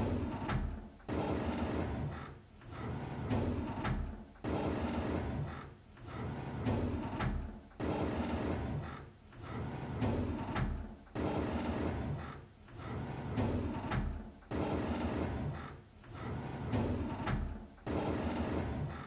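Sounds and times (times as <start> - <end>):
drawer sliding open: 8.0 - 19.0.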